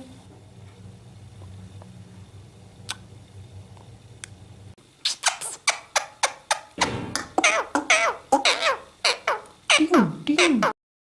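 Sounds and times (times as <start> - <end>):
parrot giving sharp calls: 5.1 - 9.8.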